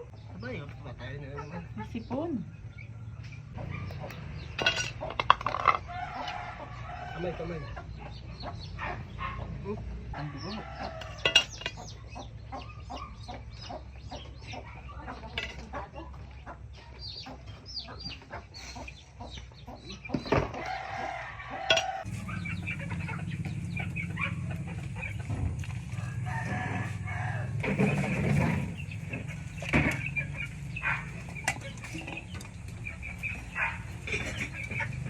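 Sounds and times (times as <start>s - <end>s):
chickens clucking: 0.0s - 35.0s
rooster crowing: 5.6s - 7.8s, 10.2s - 11.6s, 20.5s - 23.2s, 25.8s - 27.8s.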